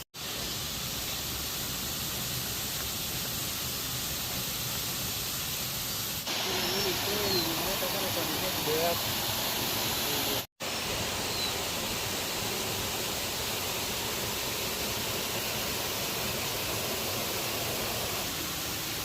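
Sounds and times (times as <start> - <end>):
waterfall rushing: 6.2 - 19.0.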